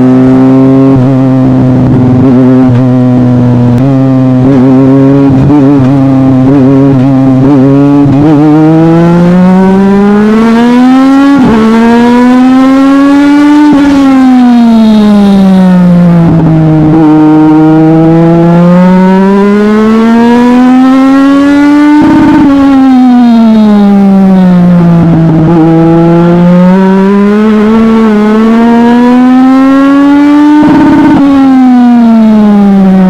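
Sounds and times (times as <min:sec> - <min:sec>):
race car engine revving: 0:00.0 - 0:33.0.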